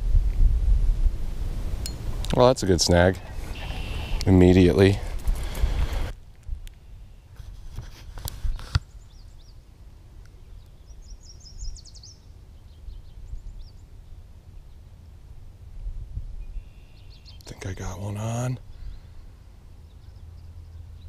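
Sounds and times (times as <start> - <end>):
wind rumble on microphone: 0.0 - 6.8, 7.4 - 9.6, 10.5 - 17.4
small birds chirping: 3.1 - 4.8, 8.5 - 15.0, 16.4 - 21.0.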